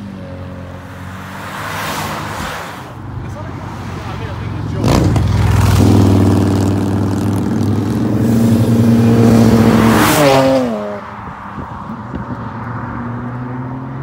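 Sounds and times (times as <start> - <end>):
car accelerating past: 3.6 - 11.2.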